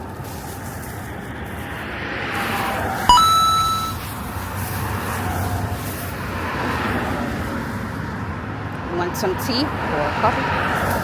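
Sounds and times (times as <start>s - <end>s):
short beep: 3.1s - 4.0s
traffic rumble: 3.9s - 11.0s.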